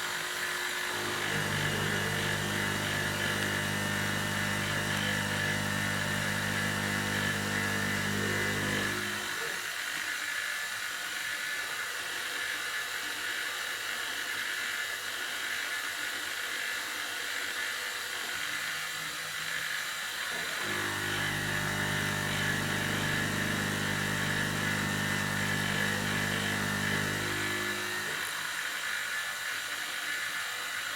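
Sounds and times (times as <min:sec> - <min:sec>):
milling spindle high whine: 0:00.0 - 0:09.7, 0:20.3 - 0:28.6.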